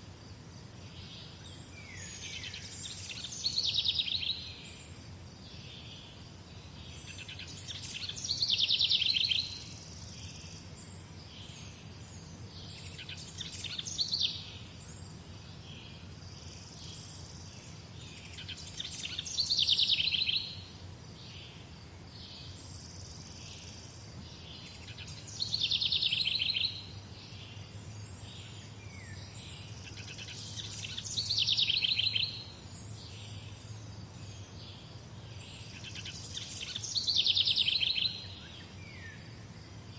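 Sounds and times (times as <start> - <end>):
soft bird calls: 0.9 - 39.4
songbird trilling: 1.2 - 4.8, 7.0 - 10.6, 12.6 - 14.6, 18.1 - 20.6, 22.6 - 27.6, 28.2 - 33.5, 35.4 - 39.2.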